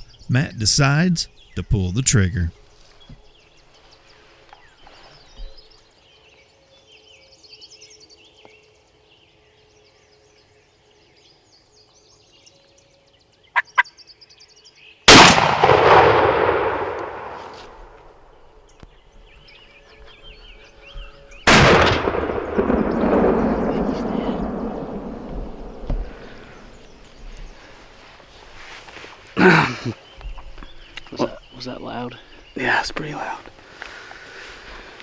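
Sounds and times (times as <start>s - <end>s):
faint songbirds calling: 0.0s - 15.1s, 16.9s - 35.0s
shotgun shot with echo: 15.1s - 18.1s, 21.5s - 27.2s.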